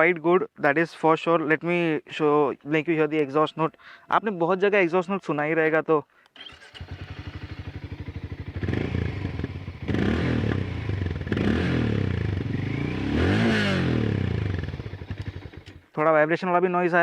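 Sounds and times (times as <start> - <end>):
motorcycle engine idling and revving: 6.4 - 15.9.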